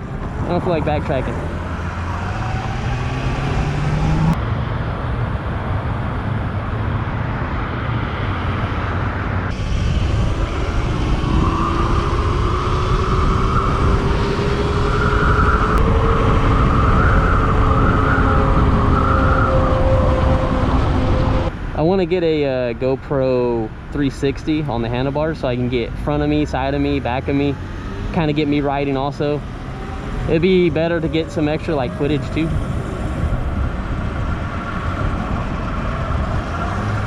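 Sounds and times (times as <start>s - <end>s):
wind and road rumble: 0.0s - 37.0s.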